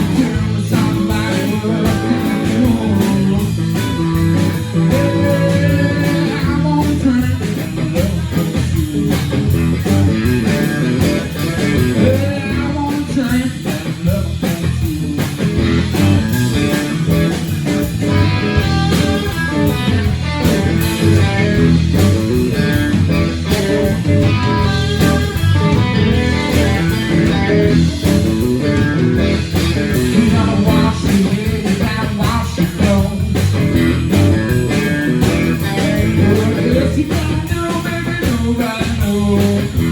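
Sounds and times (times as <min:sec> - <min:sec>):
electric guitar: 0:00.0 - 0:39.9
live blues-rock band: 0:00.0 - 0:39.9.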